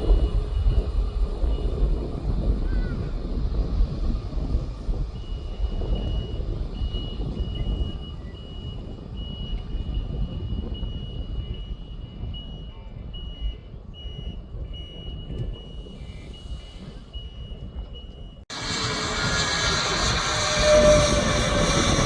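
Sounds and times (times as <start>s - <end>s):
jet airliner rumble: 0.0s - 17.2s, 18.4s - 22.0s
reversing alarm beeping: 5.1s - 22.0s.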